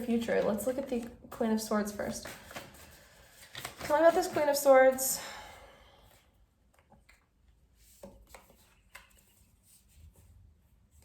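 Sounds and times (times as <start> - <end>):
cards tapping and sliding: 2.2 - 4.6, 7.8 - 9.5.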